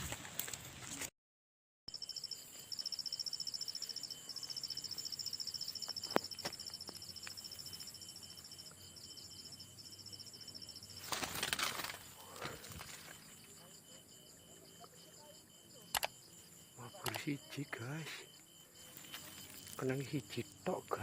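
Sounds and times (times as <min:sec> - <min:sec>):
insect chirping trill: 0:01.9 - 0:21.0
rustling: 0:10.9 - 0:13.3
sharp clicks: 0:15.9 - 0:16.2, 0:17.0 - 0:17.4.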